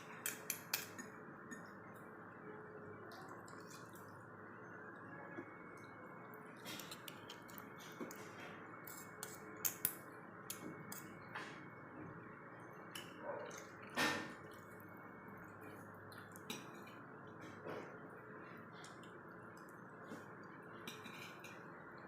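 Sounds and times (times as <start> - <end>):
chewing and mouth sounds: 13.0 - 20.9.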